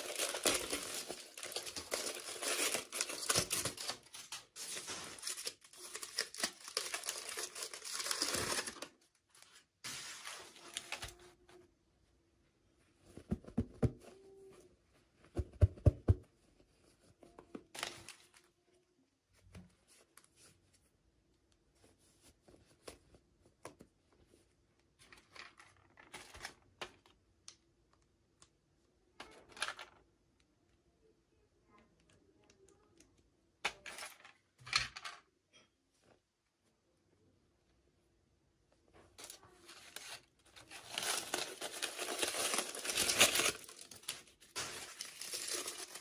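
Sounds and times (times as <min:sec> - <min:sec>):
packaging crinkling and tearing: 0:00.0 - 0:09.0, 0:39.2 - 0:46.0.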